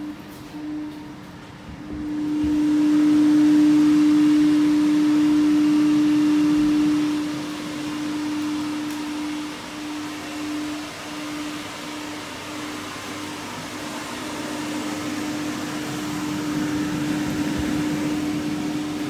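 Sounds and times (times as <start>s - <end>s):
electrical hum inside train: 0.0s - 11.4s
train running noise: 0.0s - 19.0s.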